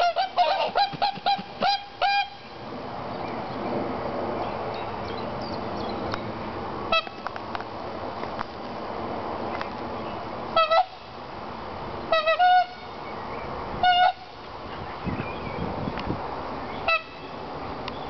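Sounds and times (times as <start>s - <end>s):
swans honking: 0.0s - 2.6s, 10.5s - 11.1s, 12.1s - 13.0s, 13.8s - 14.4s, 16.8s - 17.3s.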